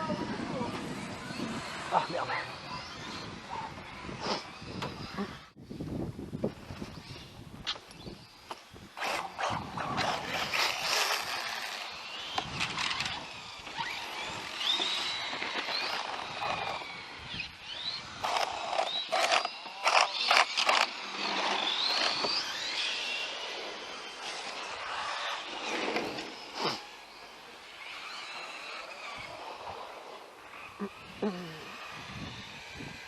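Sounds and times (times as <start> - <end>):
electric motor whine: 8.5 - 33.0.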